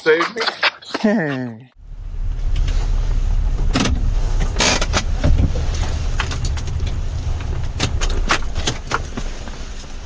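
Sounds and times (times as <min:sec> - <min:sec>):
car rumble: 0:01.8 - 0:10.0
jingling: 0:05.6 - 0:09.1.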